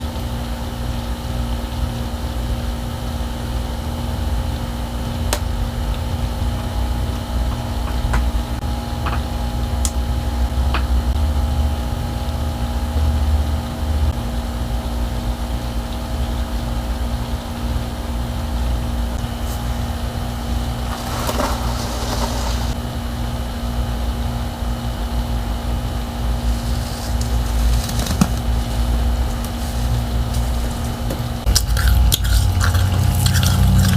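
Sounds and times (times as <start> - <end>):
appliance motor hum: 0.0 - 33.9
crackling rustles: 19.2 - 22.8, 26.4 - 33.9.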